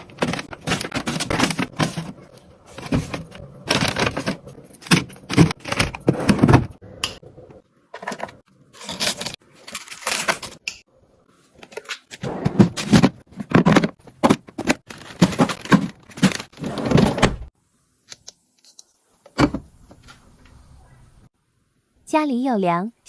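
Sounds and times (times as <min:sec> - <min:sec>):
plastic boxes and packaging clattering: 0:00.0 - 0:06.8, 0:08.0 - 0:10.6, 0:11.6 - 0:17.5.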